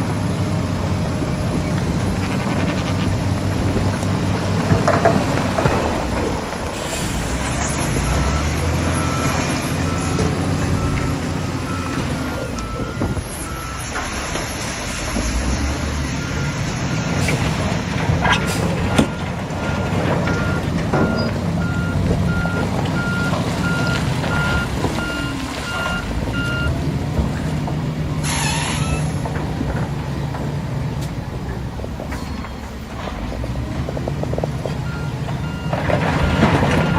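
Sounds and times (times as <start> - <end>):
diesel engine running: 0.0 - 36.9
hissing air: 6.7 - 7.8
reversing alarm beeping: 7.7 - 17.8, 18.4 - 26.8, 34.8 - 36.9.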